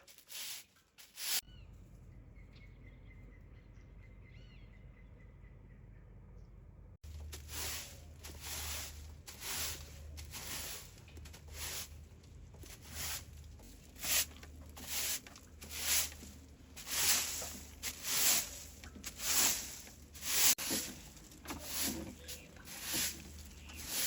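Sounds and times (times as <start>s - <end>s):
rustling scraping strokes: 0.0s - 1.5s, 7.0s - 24.0s.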